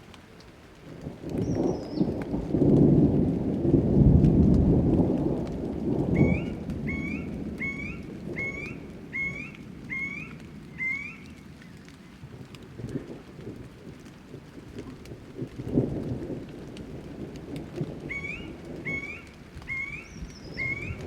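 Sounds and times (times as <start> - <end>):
steady rain: 0.0 - 21.0
thunder rumbling: 0.6 - 21.0
bird rising call: 6.2 - 11.8, 18.1 - 21.0.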